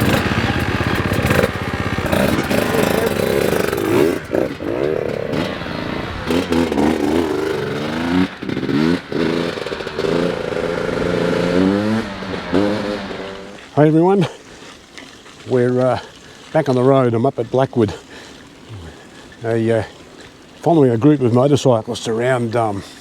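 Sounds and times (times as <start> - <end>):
dirt bike engines revving: 0.0 - 14.4.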